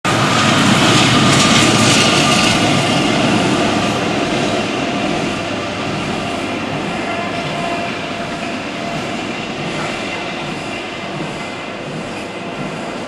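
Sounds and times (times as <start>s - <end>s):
freight train rumbling over bridge: 0.0s - 13.0s.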